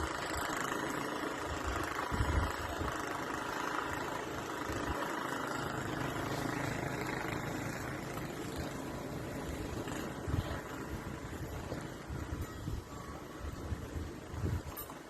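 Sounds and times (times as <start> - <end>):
engine running steadily: 0.0 - 15.0
wind buffeting microphone: 1.4 - 3.4, 7.1 - 14.8.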